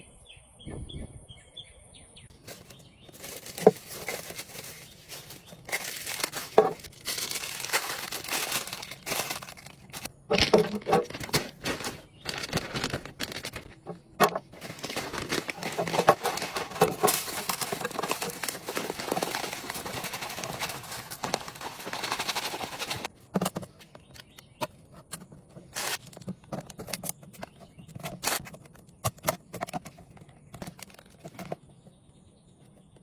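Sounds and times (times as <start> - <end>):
faint bird chirps: 0.0 - 3.2
packaging crinkling and tearing: 2.4 - 23.1, 25.7 - 27.0, 28.0 - 28.5.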